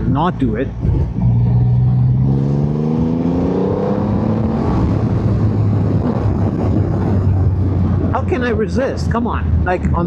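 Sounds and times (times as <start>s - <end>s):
motorcycle engine accelerating: 0.6s - 8.2s.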